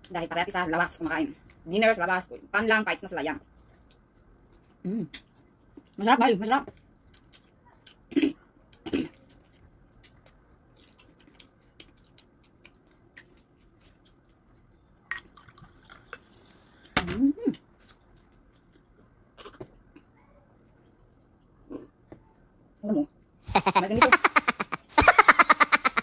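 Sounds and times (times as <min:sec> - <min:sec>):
wet chewing and lip smacks: 0:06.7 - 0:08.0, 0:08.6 - 0:16.6, 0:17.8 - 0:19.6.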